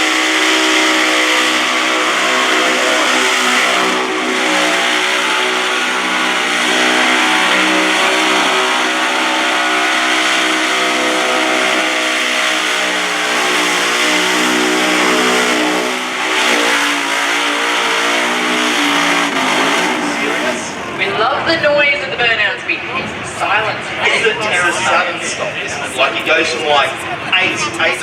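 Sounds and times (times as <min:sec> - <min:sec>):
spinning tyres hissing: 0:00.0 - 0:21.8
vee eight engine revving: 0:00.0 - 0:21.8.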